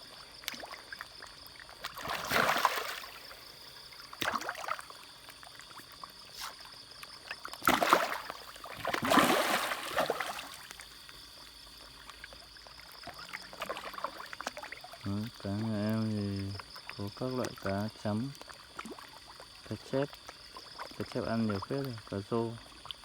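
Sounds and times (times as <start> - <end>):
fish splashing: 0.5 - 6.7, 7.3 - 12.0, 12.8 - 15.0.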